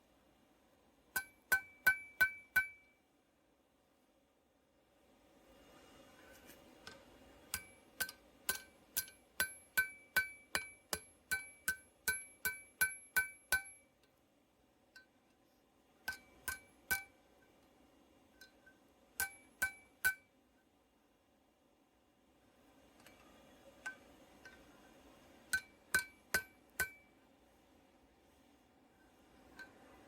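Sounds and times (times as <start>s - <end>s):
hammer ringing on steel: 1.2s - 2.9s, 8.5s - 13.9s, 25.5s - 27.1s.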